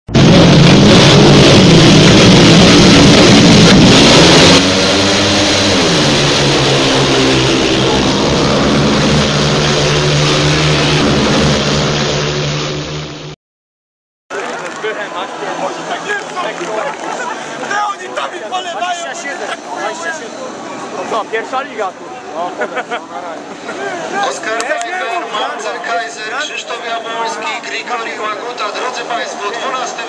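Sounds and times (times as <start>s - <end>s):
motorcycle engines revving: 0.2s - 13.3s.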